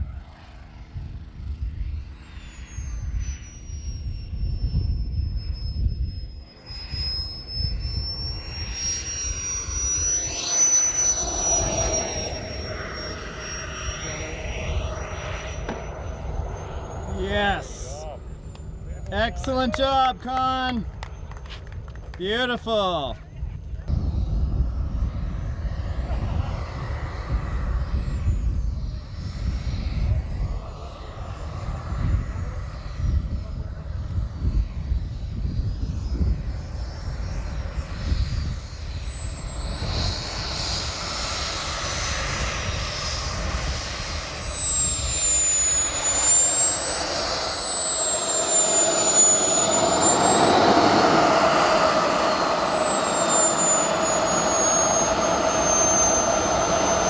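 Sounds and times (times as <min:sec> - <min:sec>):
model jet turbine whistling roar: 0:00.0 - 0:57.0
heavy low rumble: 0:44.5 - 0:57.0.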